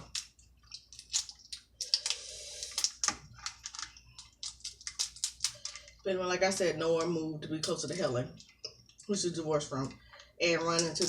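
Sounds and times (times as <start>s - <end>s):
crab shells cracking: 0.0s - 6.1s
wet squelching: 0.0s - 6.1s.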